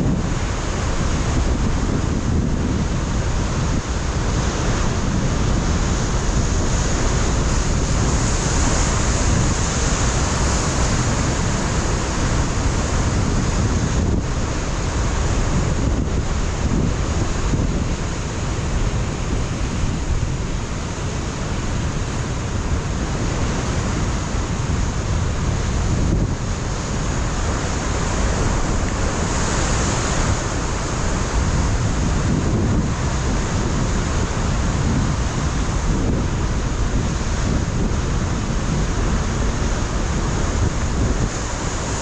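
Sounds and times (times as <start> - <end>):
wind rumbling on microphone: 0.0 - 42.0
surf breaking on rocks: 4.5 - 15.9, 17.4 - 35.6.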